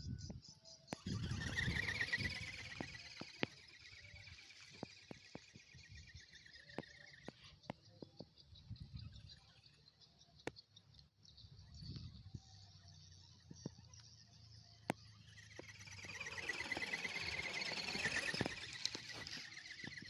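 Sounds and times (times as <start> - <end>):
high-pitched chirping pulses: 0.4 - 7.4, 12.9 - 20.0.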